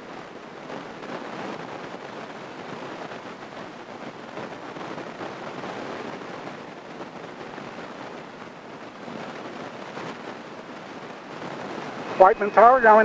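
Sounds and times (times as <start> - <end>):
airplane engine running at low power: 11.1 - 13.0.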